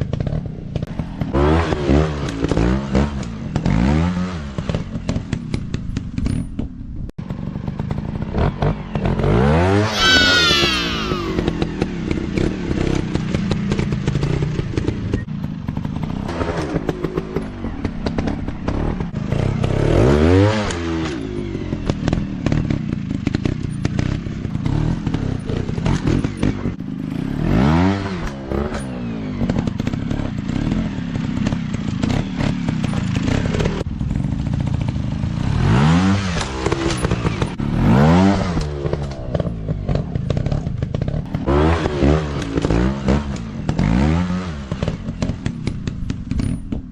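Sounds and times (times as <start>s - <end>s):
dirt bike engines revving: 7.8s - 15.2s.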